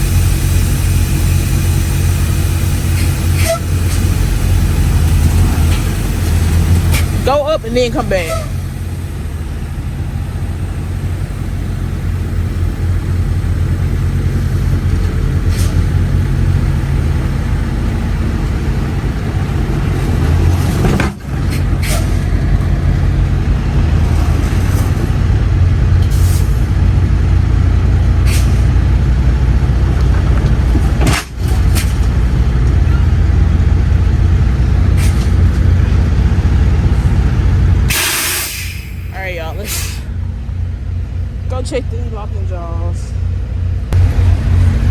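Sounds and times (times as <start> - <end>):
air brake hisses: 0.0 - 4.8, 28.3 - 28.7, 37.9 - 40.2
diesel truck engine running: 0.0 - 44.9.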